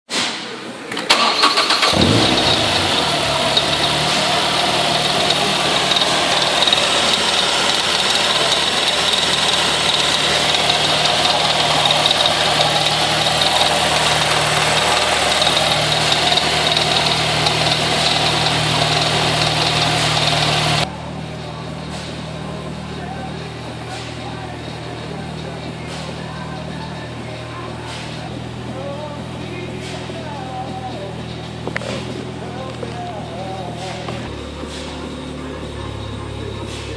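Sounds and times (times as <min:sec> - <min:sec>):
car engine starting and idling: 0:00.7 - 0:36.9.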